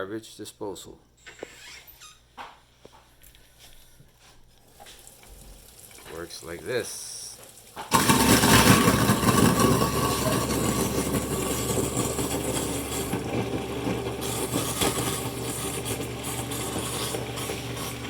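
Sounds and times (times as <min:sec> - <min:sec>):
garbage disposal motor running: 0:05.1 - 0:18.0.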